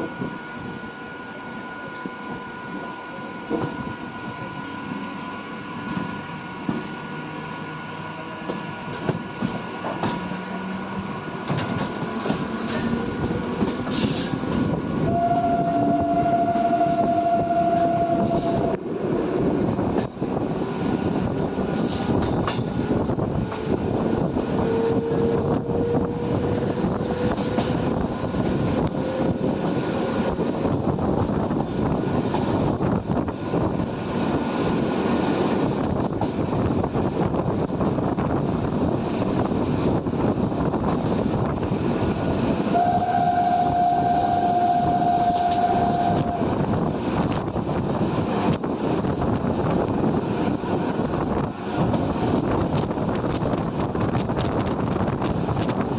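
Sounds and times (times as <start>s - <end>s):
train wheels rumbling and clattering: 1.5s - 55.9s
train horn: 13.9s - 18.8s, 24.5s - 29.8s, 42.6s - 46.9s.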